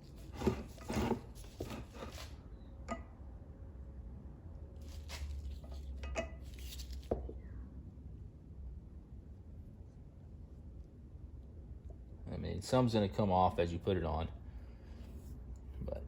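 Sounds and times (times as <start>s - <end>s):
rubbing and handling noise: 0.0s - 2.4s, 4.8s - 7.2s
steady low hum: 0.0s - 16.0s.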